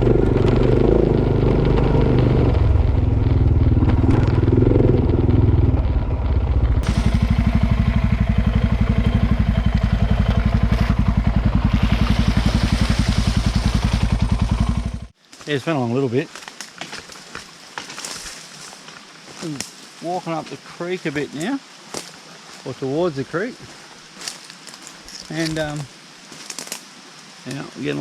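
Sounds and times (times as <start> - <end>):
vehicle engine idling: 0.0 - 15.2.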